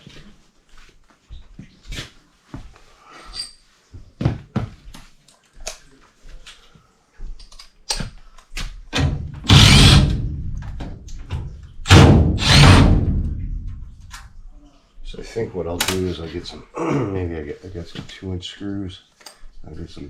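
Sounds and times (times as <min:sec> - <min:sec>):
loud rasping noise: 0:09.4 - 0:10.4, 0:11.9 - 0:13.4.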